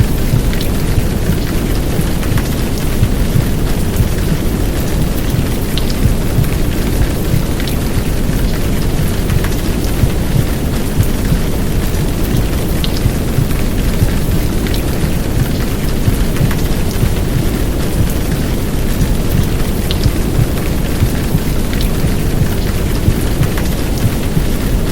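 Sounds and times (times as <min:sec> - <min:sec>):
heavy rain downpour: 0:00.0 - 0:24.9.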